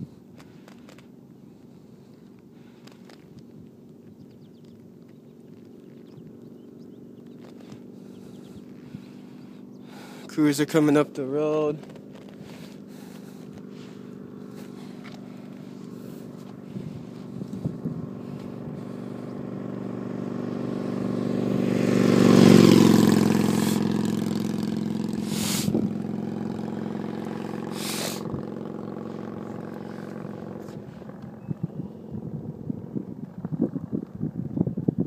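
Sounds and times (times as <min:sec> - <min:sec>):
motor vehicle driving past: 0:04.5 - 0:10.4, 0:11.8 - 0:34.5
short rushes of noise: 0:27.7 - 0:28.3.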